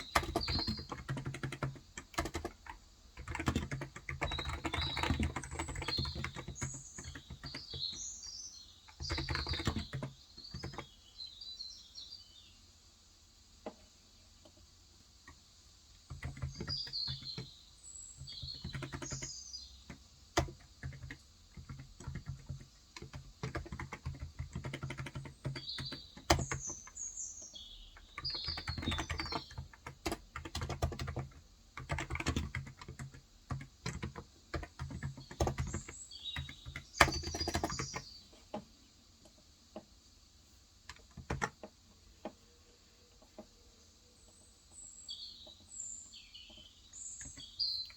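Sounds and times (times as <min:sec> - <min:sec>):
keyboard typing: 0:00.0 - 0:08.0, 0:08.9 - 0:10.9, 0:16.1 - 0:17.5, 0:18.2 - 0:27.0, 0:28.0 - 0:38.6, 0:40.9 - 0:42.4
small birds chirping: 0:00.0 - 0:47.9.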